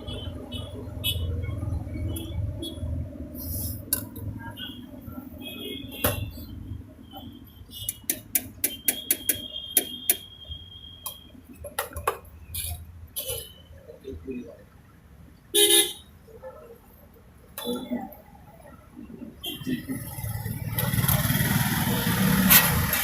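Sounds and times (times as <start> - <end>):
sharp taps and clicks: 7.9 - 10.3.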